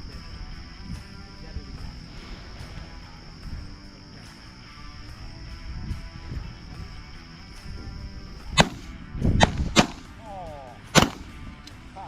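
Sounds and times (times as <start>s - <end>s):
shotgun shots: 8.6s - 10.2s, 10.9s - 11.6s.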